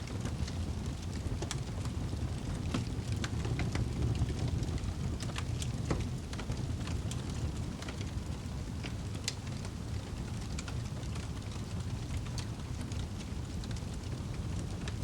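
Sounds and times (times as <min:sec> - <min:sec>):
fire crackling and popping: 0:00.0 - 0:15.0
fire rumbling in fireplace: 0:00.0 - 0:15.0.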